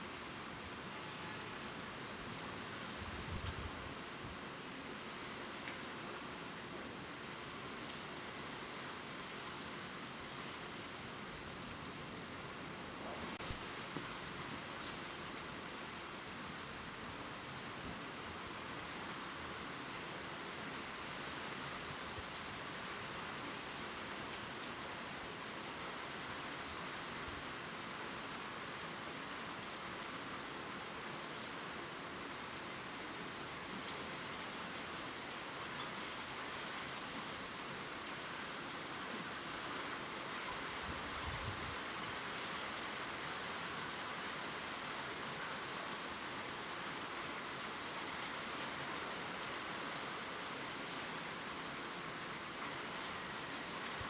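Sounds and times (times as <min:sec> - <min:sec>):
gentle rain on leaves: 0:00.0 - 0:54.0
faint raindrop ticks: 0:05.1 - 0:05.9, 0:12.1 - 0:12.4, 0:21.6 - 0:24.5, 0:30.0 - 0:30.4, 0:35.6 - 0:36.9.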